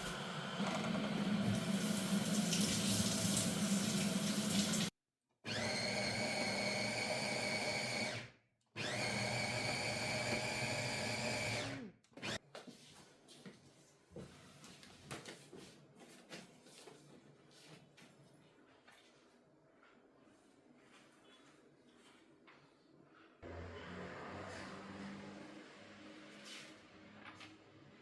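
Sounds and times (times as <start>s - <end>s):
small electric motor whine: 8.8s - 12.4s.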